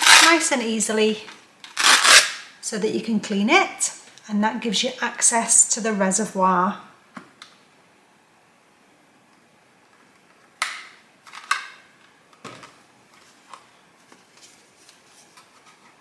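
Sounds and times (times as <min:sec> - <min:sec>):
plastic parts clicking and knocking: 0:10.6 - 0:11.8.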